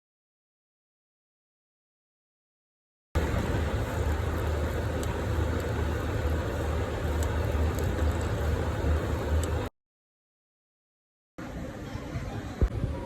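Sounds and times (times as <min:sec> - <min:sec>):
metal lathe motor humming: 0:03.2 - 0:09.7.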